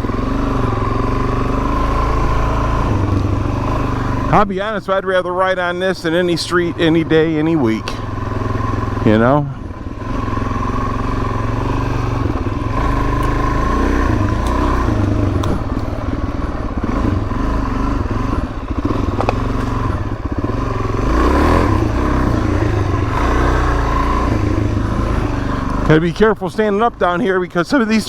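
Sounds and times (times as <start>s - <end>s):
motorcycle engine revving: 0.0s - 28.0s
clicks and clatter: 12.3s - 16.1s, 19.1s - 19.8s.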